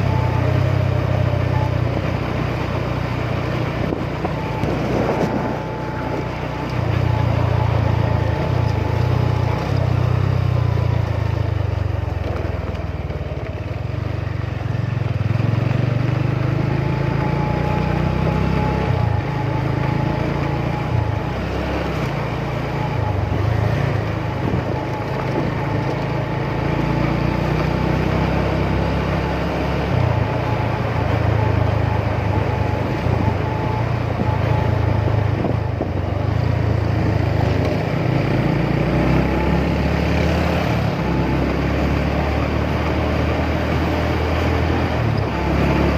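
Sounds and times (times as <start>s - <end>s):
motorcycle engine running: 0.0s - 45.9s
wind and road noise: 0.0s - 45.9s.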